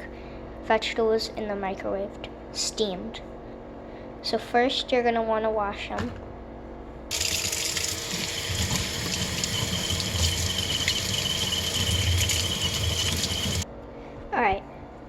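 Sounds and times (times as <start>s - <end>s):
faint high whine from faucet: 7.1s - 13.6s
tap running into sink: 7.1s - 13.6s.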